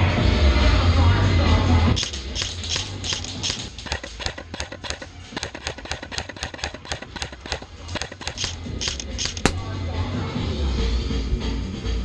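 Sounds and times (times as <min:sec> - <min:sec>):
airsoft shots clicking: 0:09.5 - 0:09.8.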